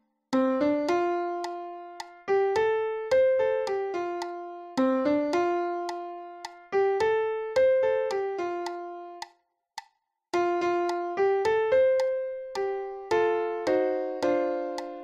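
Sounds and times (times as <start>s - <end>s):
piano single note melody: 10.4s - 15.0s.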